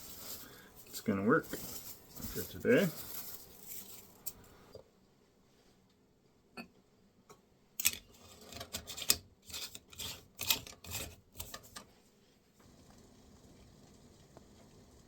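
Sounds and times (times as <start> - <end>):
dried plants crackling: 0.0 - 4.7.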